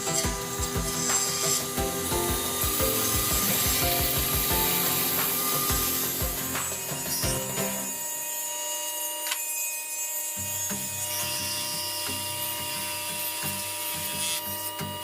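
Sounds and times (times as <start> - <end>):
background music with beat: 0.0 - 8.0
tool scraping across wood: 0.0 - 8.1.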